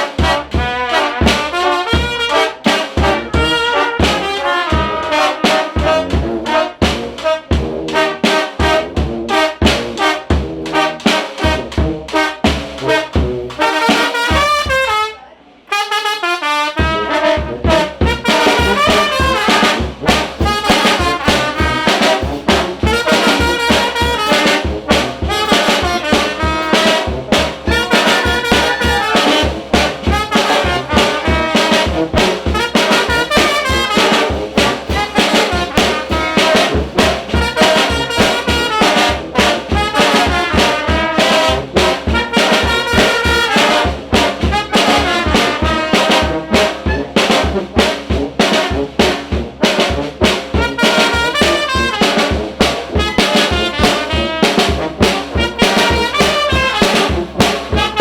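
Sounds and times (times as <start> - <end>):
brass band playing: 0.0 - 58.0
steady low beat: 17.4 - 38.1.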